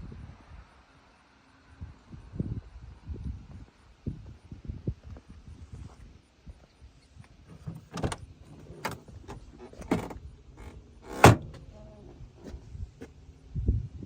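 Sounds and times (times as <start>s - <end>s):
car body clunks and knocks: 7.5s - 11.7s.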